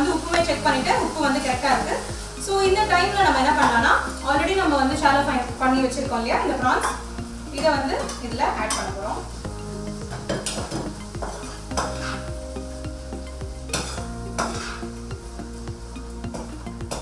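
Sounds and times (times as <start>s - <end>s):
gravy sizzling in pan: 0.0s - 17.0s
metal spatula scraping pan: 10.1s - 12.3s, 13.7s - 15.0s.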